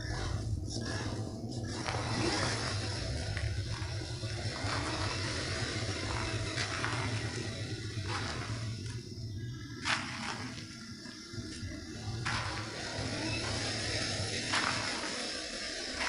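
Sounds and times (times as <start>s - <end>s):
toy truck motor and gears hum: 0.0s - 16.0s.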